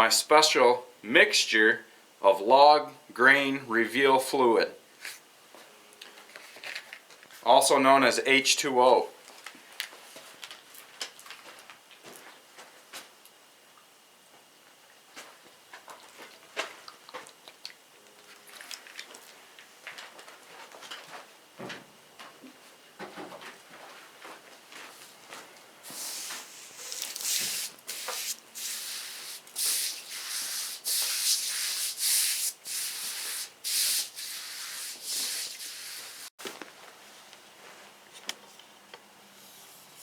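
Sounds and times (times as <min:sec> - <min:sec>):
hissing rubbing strokes: 0:25.9 - 0:36.3.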